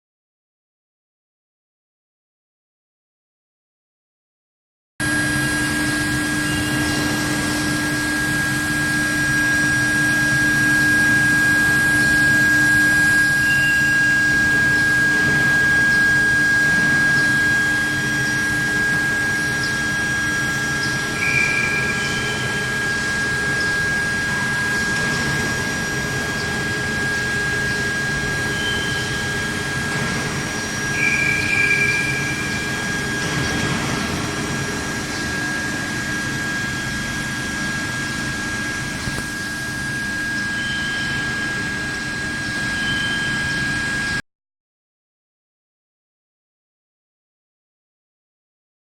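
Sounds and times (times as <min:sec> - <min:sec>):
low hum: 0:05.0 - 0:44.1
machine high-pitched whine: 0:05.0 - 0:44.2.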